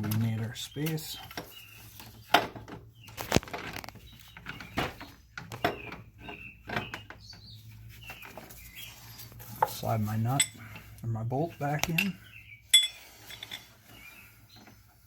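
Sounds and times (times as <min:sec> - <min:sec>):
metal knocks clunks and scrapes: 0:00.0 - 0:11.0.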